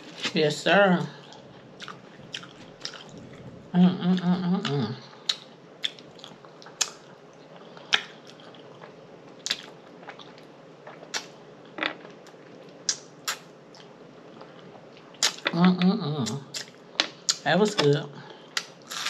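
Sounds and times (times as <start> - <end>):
close-up chewing: 1.2 - 3.6.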